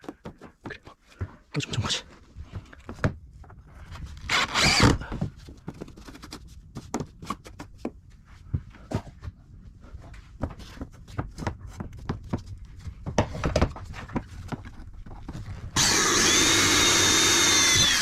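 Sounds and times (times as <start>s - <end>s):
power drill whining: 4.3s - 5.1s, 15.8s - 18.0s.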